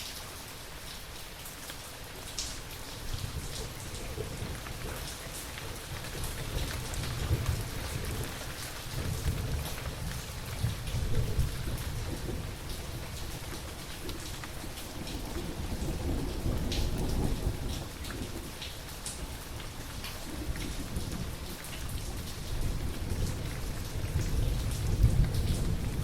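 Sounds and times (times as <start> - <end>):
steady rain: 0.0 - 26.0
rolling thunder rumble: 20.6 - 26.0.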